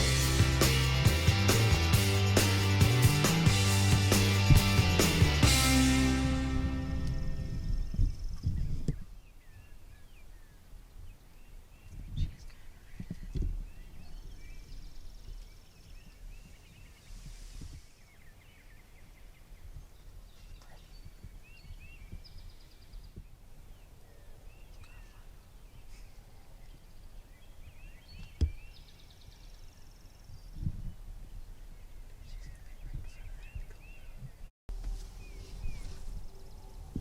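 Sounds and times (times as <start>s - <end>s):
low rumble on microphone: 2.8s - 9.2s, 32.1s - 37.0s
small birds chirping: 6.8s - 37.0s.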